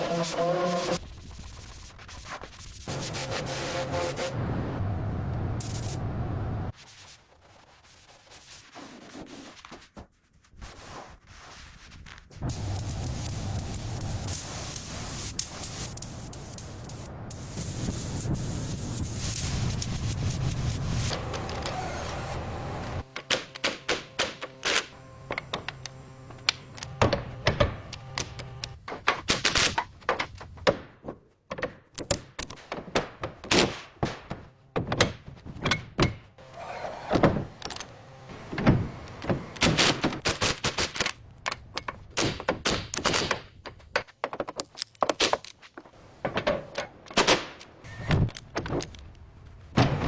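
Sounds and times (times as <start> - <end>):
tools knocking and clicking: 41.4 - 45.5.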